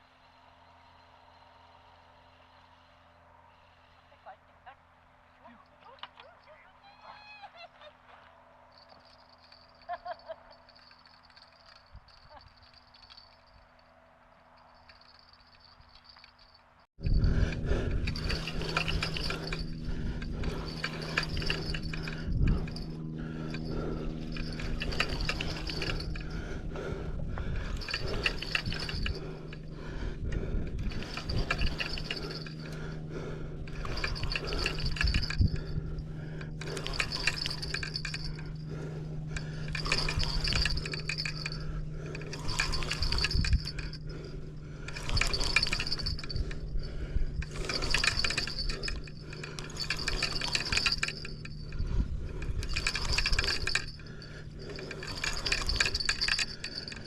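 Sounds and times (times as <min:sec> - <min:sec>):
steady low hum: 0:08.6 - 0:57.0
wind rumbling on microphone: 0:17.0 - 0:57.0.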